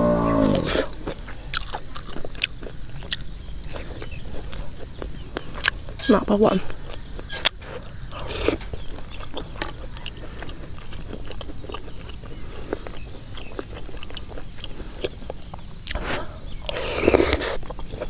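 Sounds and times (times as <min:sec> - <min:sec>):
chewing with crunching clicks: 0:00.1 - 0:18.0
bite or slurp: 0:16.7 - 0:17.6.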